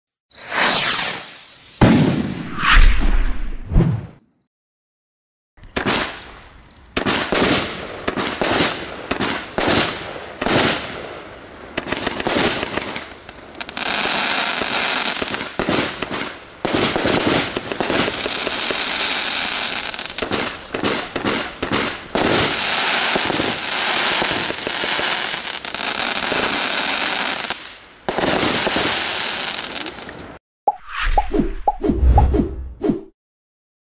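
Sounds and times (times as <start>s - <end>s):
firework glitter crackling: 0.4s - 1.8s
firework shots firing: 0.5s - 2.4s, 7.0s - 11.0s, 15.0s - 30.1s.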